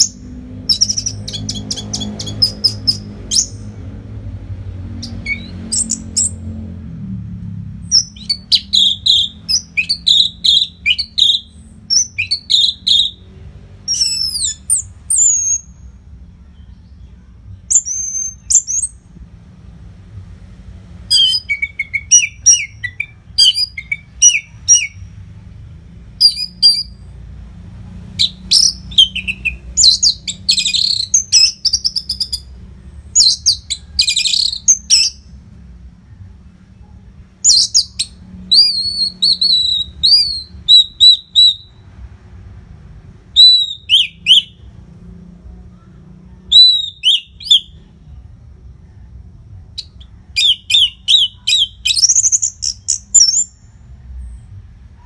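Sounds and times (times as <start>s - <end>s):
thrush singing: 0.0s - 6.8s, 7.8s - 15.8s, 21.0s - 25.1s, 49.8s - 53.5s.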